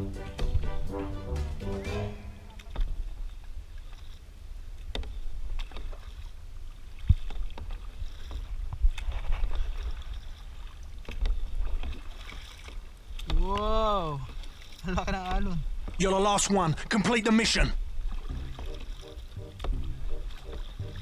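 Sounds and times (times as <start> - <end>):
paddles splashing in water: 0.0 - 21.0
low steady rumble: 18.3 - 21.0.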